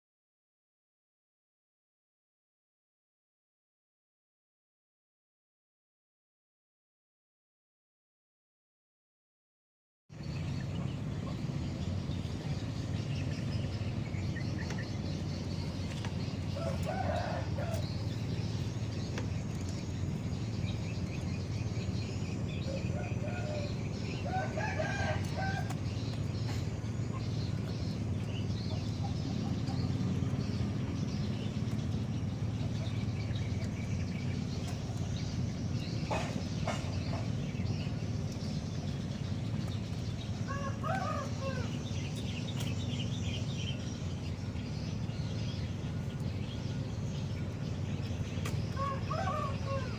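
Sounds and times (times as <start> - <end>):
steady low hum: 10.1 - 49.9
rooster crowing: 16.5 - 18.0, 22.9 - 25.8, 40.5 - 41.8, 48.8 - 49.9.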